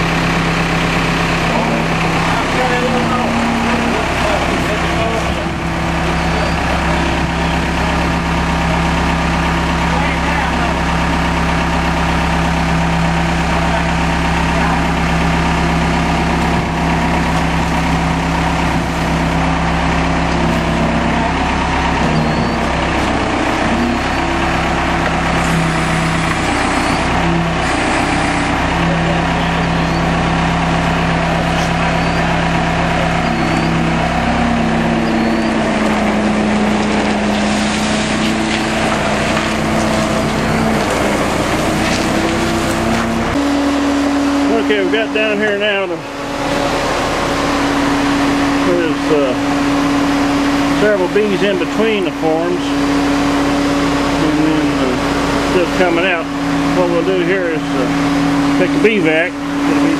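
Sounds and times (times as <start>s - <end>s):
skid steer engine running: 0.0s - 59.9s.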